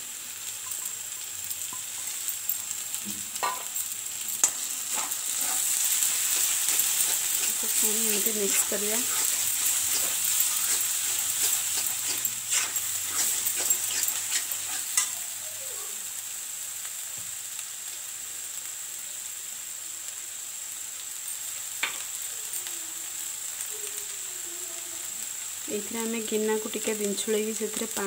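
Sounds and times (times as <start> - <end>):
food sizzling in oil: 0.0 - 28.0
steel spatula scraping iron pan: 4.4 - 15.2.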